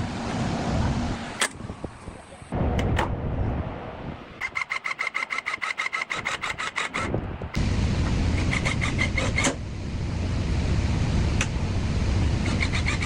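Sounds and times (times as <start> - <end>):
steady low running noise: 7.2 - 13.0
rapid hand tool strokes: 12.4 - 13.0.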